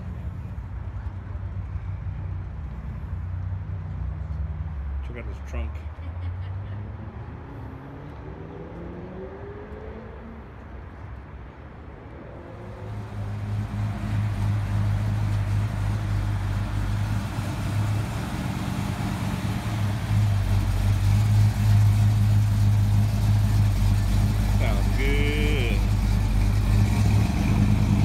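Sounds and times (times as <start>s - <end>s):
car engine running: 12.9s - 28.0s.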